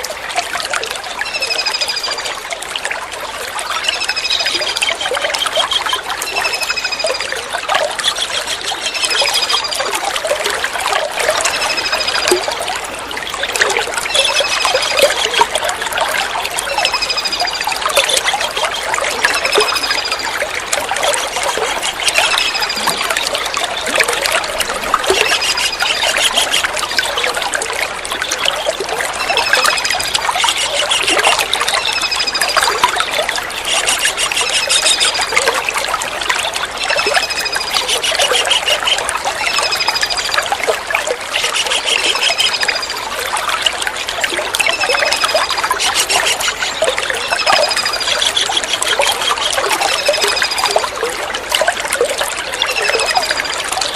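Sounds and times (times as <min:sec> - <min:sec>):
trickling water: 0:00.0 - 0:53.9
kingfisher calling: 0:21.2 - 0:27.1, 0:28.2 - 0:35.4, 0:36.7 - 0:40.3, 0:41.3 - 0:42.9, 0:44.7 - 0:50.4.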